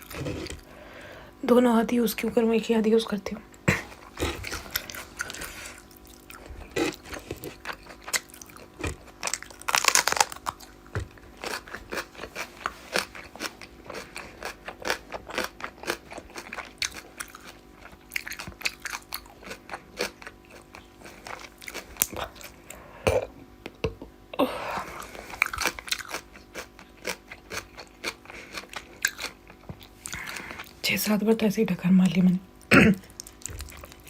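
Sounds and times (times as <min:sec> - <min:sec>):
person chewing crunchy food: 0:00.0 - 0:00.9, 0:03.6 - 0:24.1, 0:24.7 - 0:30.8, 0:32.5 - 0:34.0.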